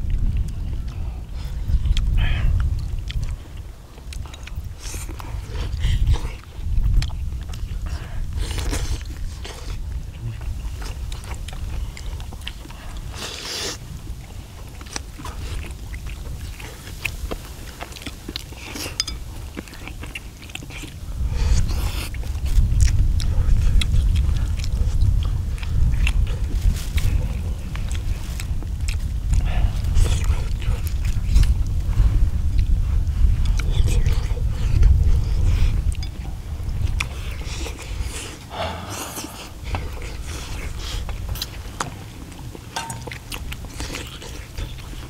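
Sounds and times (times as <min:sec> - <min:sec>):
people chewing wet food: 0:00.0 - 0:45.0
low rumble: 0:22.2 - 0:43.7.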